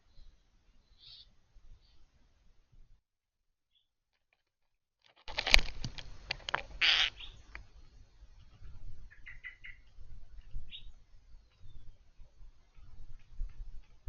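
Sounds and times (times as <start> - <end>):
bird chirps: 0.0 - 2.0, 6.8 - 12.1.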